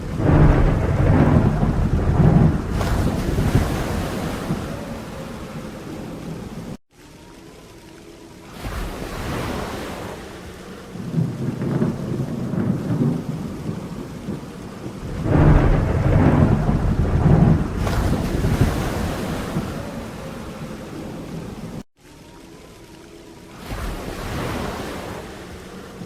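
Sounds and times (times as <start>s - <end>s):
thunder rumbling: 0.0s - 6.8s, 8.6s - 21.8s
rain falling: 0.0s - 26.0s.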